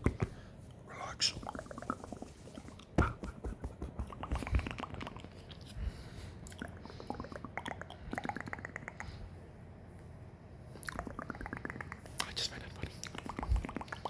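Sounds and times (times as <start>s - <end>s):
wet mouth clicks and smacks: 6.4s - 9.2s, 10.8s - 14.0s.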